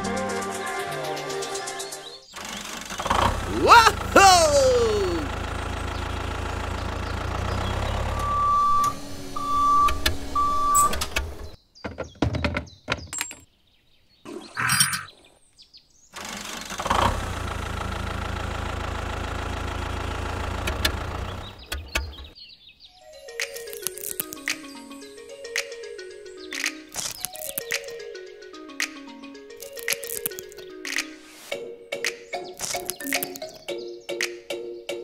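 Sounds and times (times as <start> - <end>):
tractor engine idling: 2.7 - 10.6, 16.6 - 22.4
clicks and handling noises: 23.4 - 24.6, 26.6 - 27.9, 29.6 - 31.1, 32.6 - 33.6.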